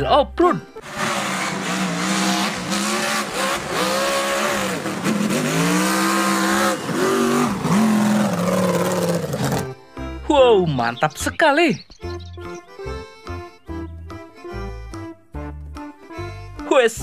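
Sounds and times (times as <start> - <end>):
car engine revving: 0.8 - 9.8.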